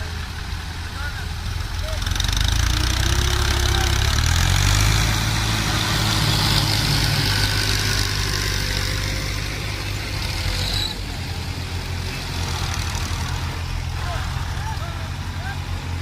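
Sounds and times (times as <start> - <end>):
diesel tractor engine running: 0.0 - 16.0.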